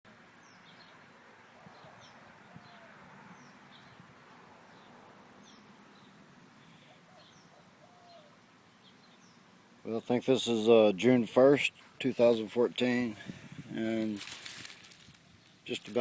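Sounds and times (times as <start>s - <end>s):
bird chirping: 0.4s - 10.1s.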